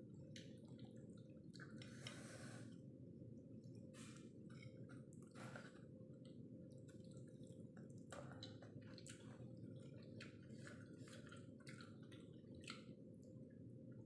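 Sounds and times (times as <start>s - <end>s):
wet chewing and mouth clicks: 4.0s - 13.6s.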